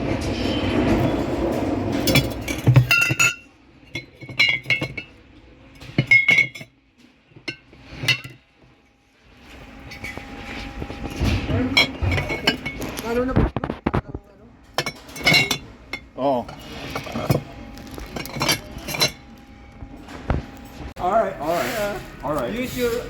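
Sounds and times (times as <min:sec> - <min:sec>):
glass bottles clinking: 0:02.0 - 0:08.5, 0:10.9 - 0:13.2, 0:14.7 - 0:19.6.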